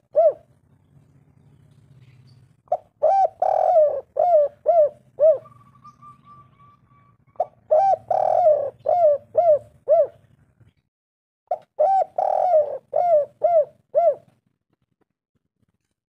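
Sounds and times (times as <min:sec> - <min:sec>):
dove cooing: 0:00.0 - 0:00.6, 0:02.0 - 0:10.5, 0:11.5 - 0:14.4.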